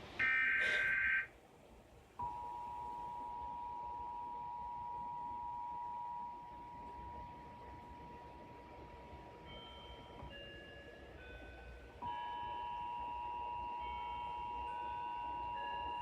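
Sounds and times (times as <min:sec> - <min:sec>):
short high beeps: 0:00.2 - 0:01.2
two-note alarm tone: 0:00.2 - 0:01.3.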